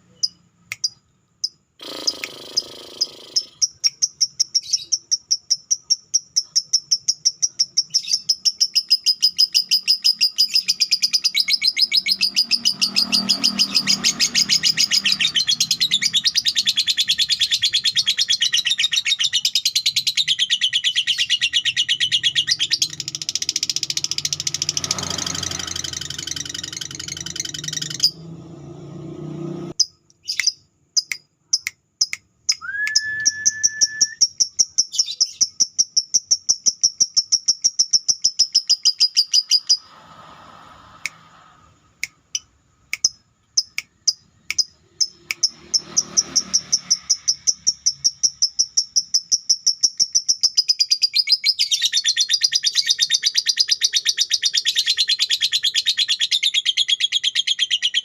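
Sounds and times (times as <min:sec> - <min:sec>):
lovebird chattering: 0:01.8 - 0:28.2, 0:30.2 - 0:39.9.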